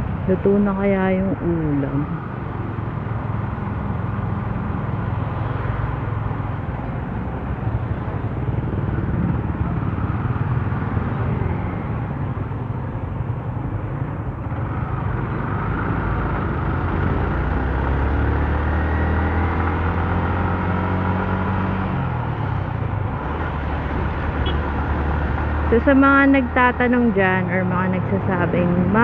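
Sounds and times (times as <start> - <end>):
road noise: 0.0 - 29.0
motorcycle engine revving: 14.6 - 29.0.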